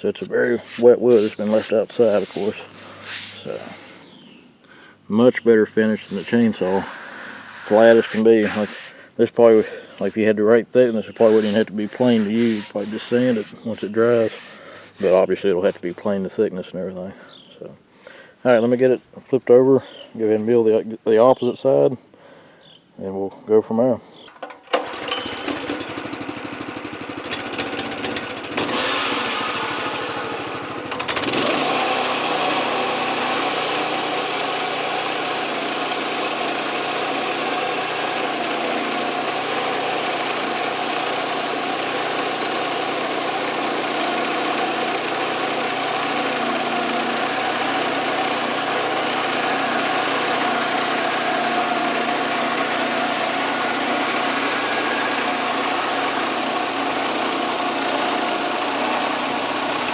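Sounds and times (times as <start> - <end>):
high thin whine: 0.0 - 4.2, 5.2 - 15.9
small gas engine running: 0.0 - 4.2, 5.8 - 10.2, 11.0 - 15.8, 24.7 - 59.9.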